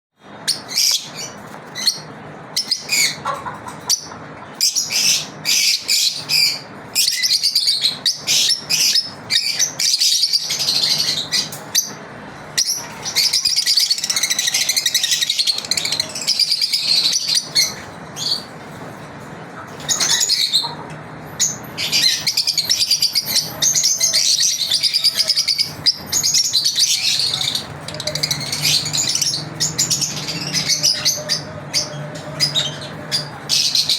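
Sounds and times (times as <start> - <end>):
lovebirds chirping: 19.7 - 33.9.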